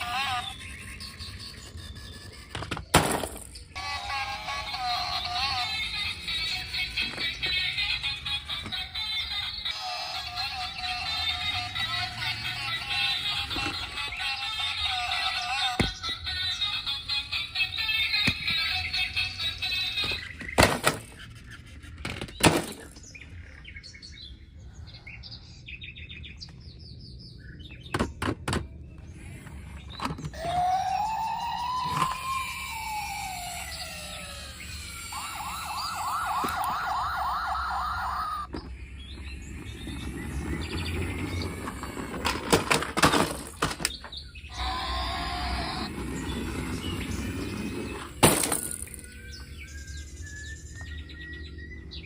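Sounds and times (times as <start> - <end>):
toy chirps: 0.0 - 2.6, 3.5 - 20.6, 30.3 - 38.6, 43.9 - 50.8
fast warbling tone: 30.4 - 38.5
rising and falling siren tone: 30.4 - 38.5.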